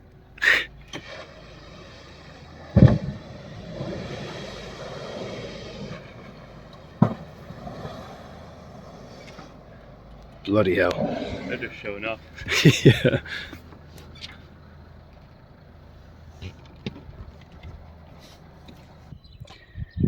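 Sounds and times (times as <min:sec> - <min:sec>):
boat motor running: 0:00.0 - 0:19.1
sharp thump: 0:02.6 - 0:05.0.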